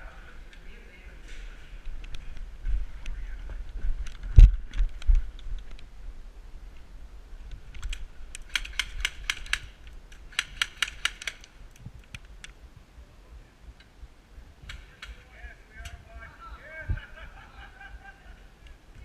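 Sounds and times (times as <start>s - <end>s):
airsoft gun rapid clicks: 7.7s - 12.6s.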